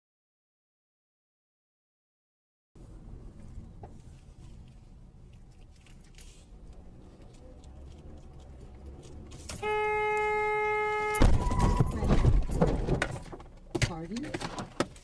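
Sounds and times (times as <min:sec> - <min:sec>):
low vehicle rumble: 0:02.8 - 0:14.2
car horn: 0:09.5 - 0:12.3.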